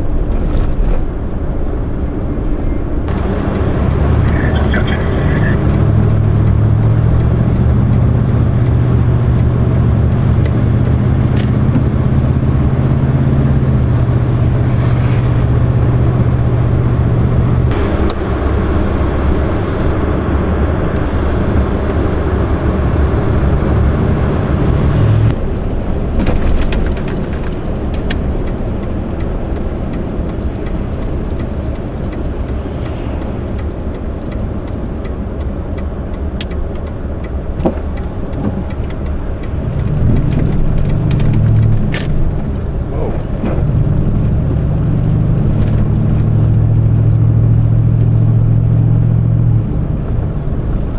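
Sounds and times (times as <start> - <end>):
car engine hum: 0.0 - 50.9
road and tyre noise: 0.0 - 50.9.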